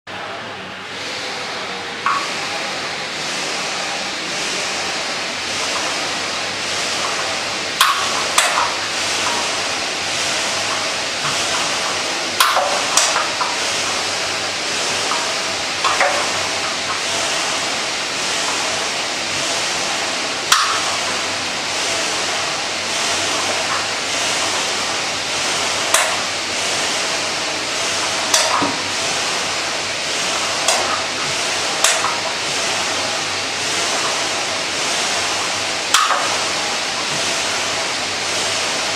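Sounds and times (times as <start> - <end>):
sharp clack: 35.9 - 36.4.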